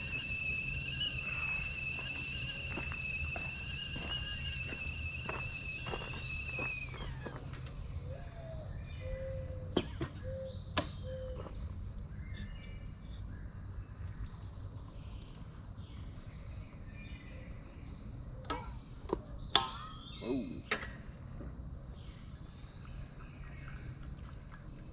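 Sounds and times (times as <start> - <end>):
higher chirps: 0.0 - 9.5
whistled animal calls: 0.0 - 11.6
insect hum: 0.0 - 24.9.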